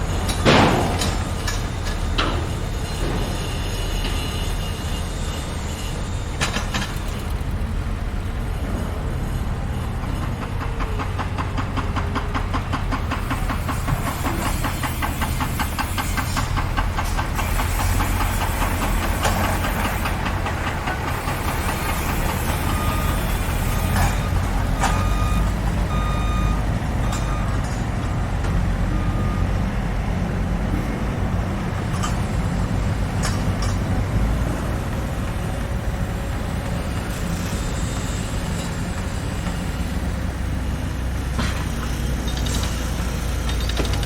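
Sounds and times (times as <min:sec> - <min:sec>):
heavy diesel engine running: 0:00.0 - 0:44.0
fast rattling clatter: 0:06.2 - 0:15.2
reversing alarm beeping: 0:20.8 - 0:29.7.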